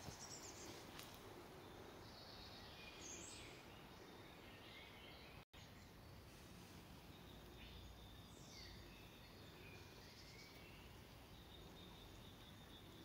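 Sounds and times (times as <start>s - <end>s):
background hiss: 0.0s - 13.0s
bird chirps: 7.0s - 13.0s.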